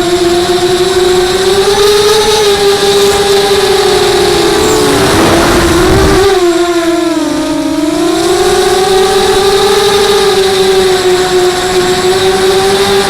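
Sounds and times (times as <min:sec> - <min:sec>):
quadcopter motors whining: 0:00.0 - 0:13.0
rush of air noise: 0:02.8 - 0:06.7.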